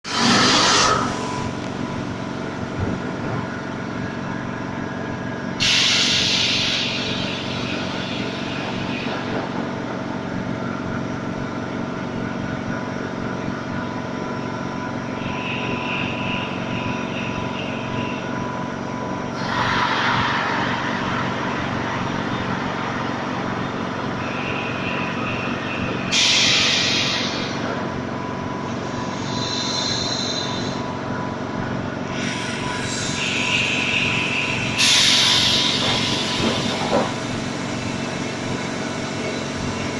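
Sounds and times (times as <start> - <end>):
air hissing bursts: 5.6 - 8.2, 26.1 - 27.6, 29.1 - 30.8, 32.1 - 36.9
air compressor motor hum: 28.8 - 31.0.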